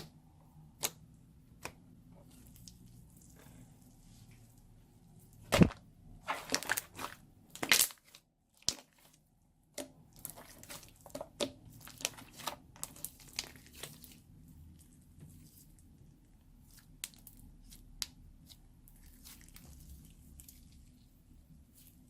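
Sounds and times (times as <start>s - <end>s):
slime and plastic bag crinkling: 5.5s - 9.2s, 10.2s - 14.3s.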